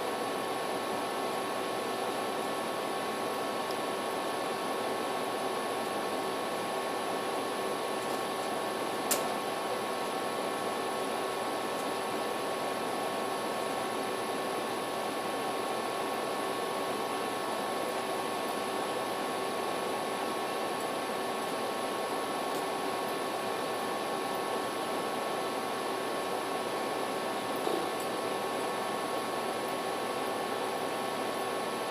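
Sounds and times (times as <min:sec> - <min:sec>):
background hiss and hum: 0:00.0 - 0:31.9
click: 0:09.1 - 0:09.3.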